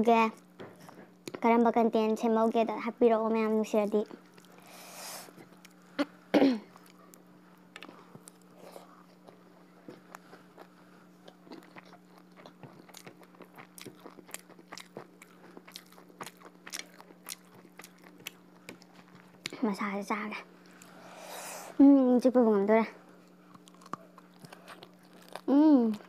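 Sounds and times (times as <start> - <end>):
steady low hum: 0.0 - 26.0
wet chewing and smacking: 3.9 - 4.7, 6.8 - 19.6, 23.3 - 26.0
throat clearing: 6.3 - 6.8.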